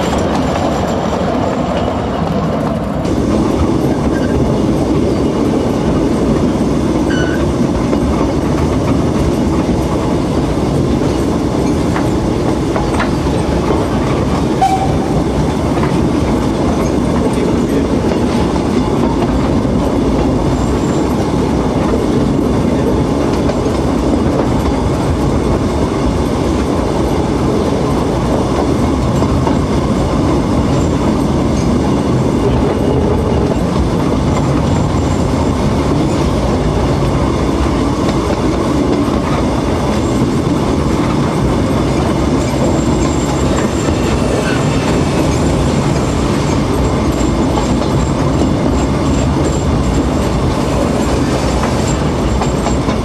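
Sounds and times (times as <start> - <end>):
carriage wheels on track: 38.0 - 53.0.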